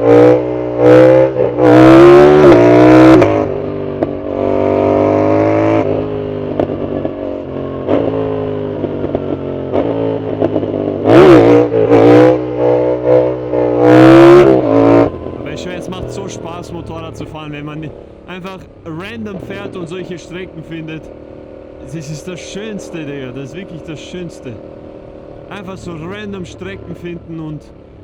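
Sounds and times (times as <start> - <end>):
motorcycle engine accelerating: 0.0 - 19.7, 20.5 - 23.3, 24.3 - 26.6.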